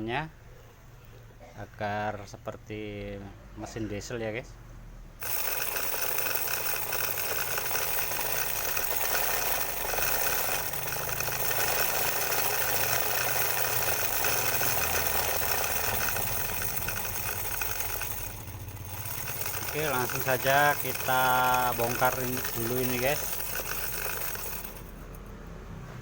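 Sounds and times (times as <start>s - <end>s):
toy motor rattling clatter: 5.2s - 25.4s.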